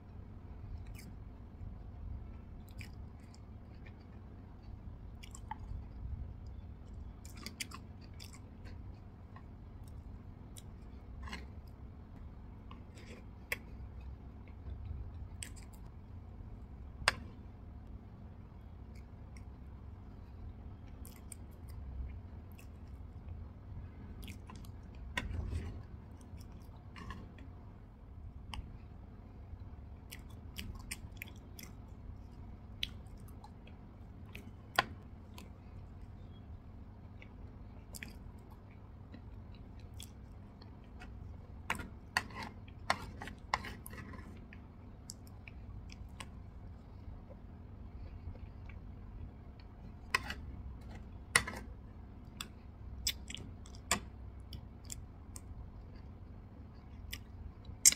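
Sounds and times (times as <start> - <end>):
chewing and mouth sounds: 0.7 - 1.2, 2.5 - 11.7, 20.3 - 23.3, 24.0 - 27.5, 29.9 - 36.4, 37.0 - 57.9.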